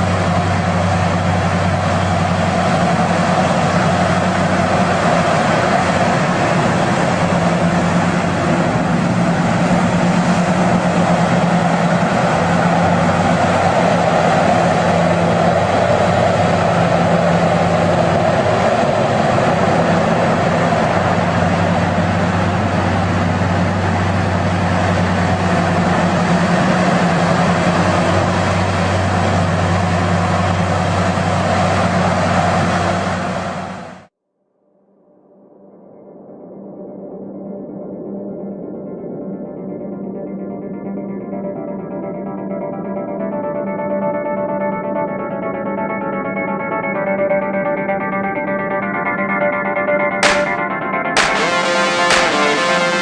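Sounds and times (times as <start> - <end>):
heavy machinery engine drone: 0.0 - 34.1, 50.2 - 53.0.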